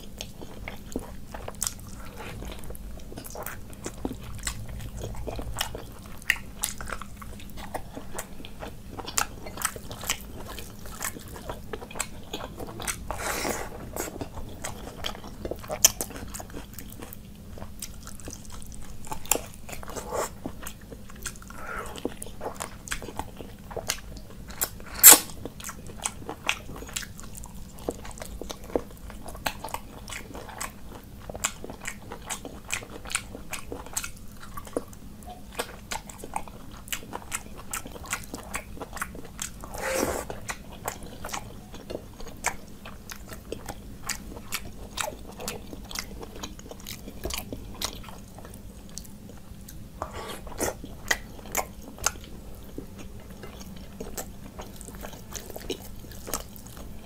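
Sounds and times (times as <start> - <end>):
chewing with wet mouth clicks: 0.0 - 57.0
faint low hum: 0.0 - 57.0
loud mouth noise: 24.8 - 25.3, 39.7 - 40.3.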